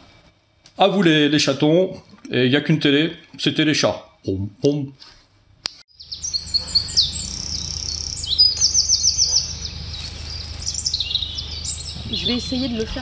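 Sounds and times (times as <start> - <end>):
songbirds singing: 5.9 - 13.0
steady low rumble: 6.0 - 13.0.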